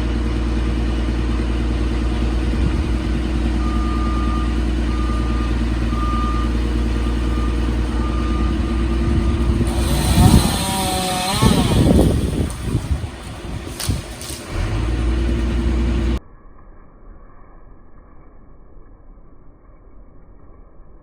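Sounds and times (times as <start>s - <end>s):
heavy vehicle engine running: 0.0s - 16.2s
back-up alarm beeping: 3.6s - 12.6s.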